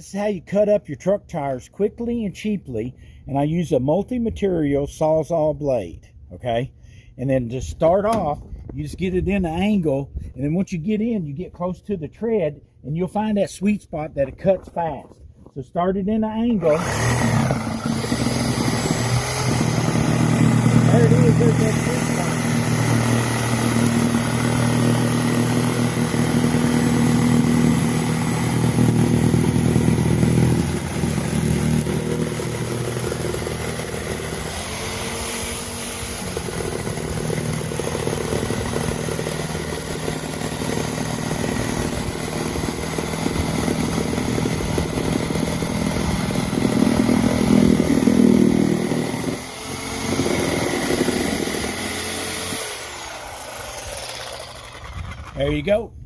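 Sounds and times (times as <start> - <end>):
reciprocating saw cutting tire: 16.5 - 55.6.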